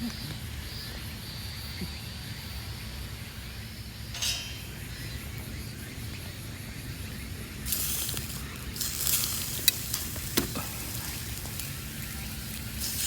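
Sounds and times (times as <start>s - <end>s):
short clink: 4.2s - 5.6s
food sizzling on a grill: 6.8s - 13.0s.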